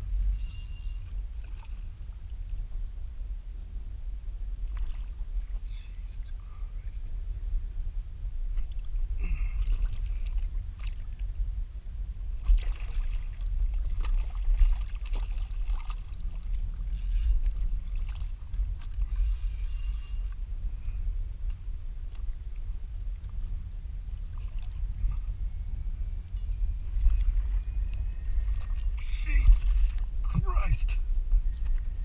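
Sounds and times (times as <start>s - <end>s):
wind rumbling on microphone: 0.0s - 32.0s
short high-pitched chirps: 19.2s - 20.3s.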